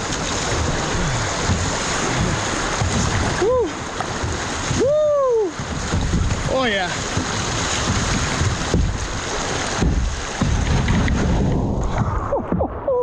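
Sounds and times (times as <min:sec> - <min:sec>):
river rapids rushing: 0:00.0 - 0:12.0
wind buffeting microphone: 0:00.0 - 0:12.7.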